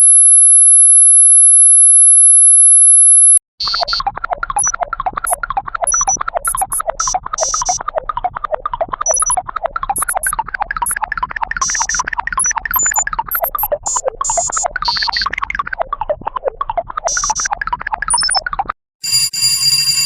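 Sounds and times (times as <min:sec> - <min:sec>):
short high-pitched beeps: 0:00.0 - 0:04.0, 0:05.8 - 0:07.8, 0:09.1 - 0:09.4, 0:10.0 - 0:11.0, 0:11.6 - 0:15.2, 0:18.1 - 0:18.4
electronic warbling sweep: 0:03.6 - 0:18.7.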